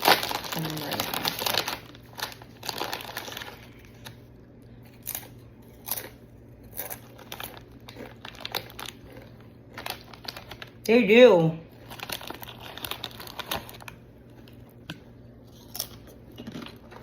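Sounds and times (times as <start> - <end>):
chips crunching: 0.0 - 4.2, 4.8 - 10.8, 11.7 - 17.0
plastic snack bag crinkling: 0.0 - 4.3, 4.9 - 10.9, 11.7 - 14.8.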